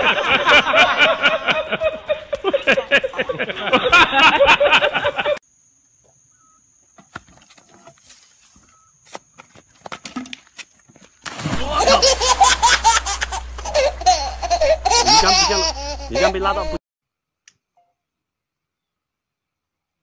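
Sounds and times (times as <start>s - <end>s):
loud laughter: 0.0s - 5.4s, 11.5s - 16.8s.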